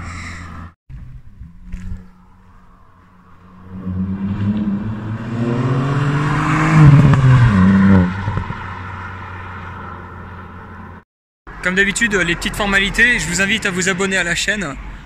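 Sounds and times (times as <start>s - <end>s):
car engine accelerating hard: 3.4s - 11.0s.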